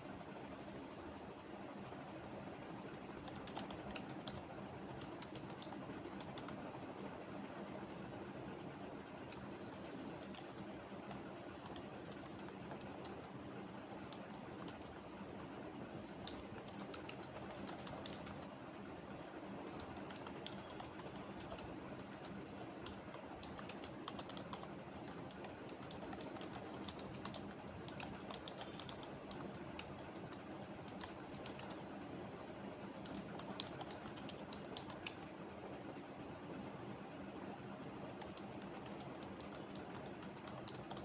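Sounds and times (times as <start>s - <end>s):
low background hum: 0.0s - 41.0s
keyboard typing clicks: 2.9s - 6.6s, 9.3s - 13.4s, 14.1s - 15.0s, 16.1s - 18.5s, 19.7s - 31.8s, 33.0s - 35.4s, 38.2s - 41.0s.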